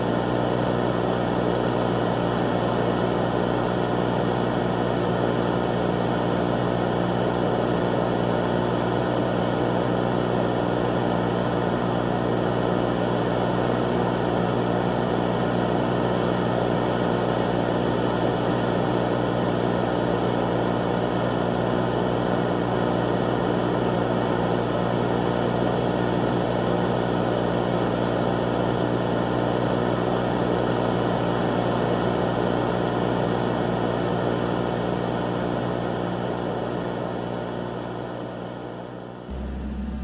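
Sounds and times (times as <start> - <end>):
loud droning hum: 39.3 - 40.0.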